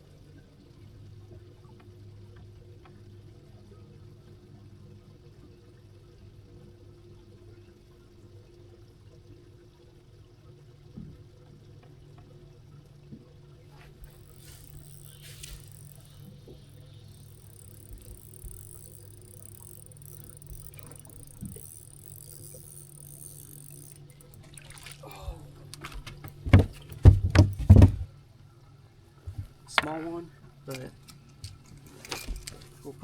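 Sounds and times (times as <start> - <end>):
electric boat motor humming: 8.2 - 33.0
light knocks and clatters: 25.7 - 28.1, 30.7 - 33.0.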